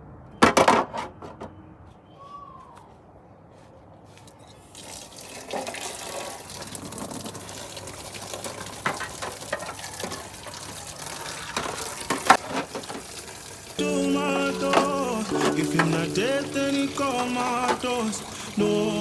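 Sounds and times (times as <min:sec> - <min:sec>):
tap water running into sink: 0:04.7 - 0:19.0.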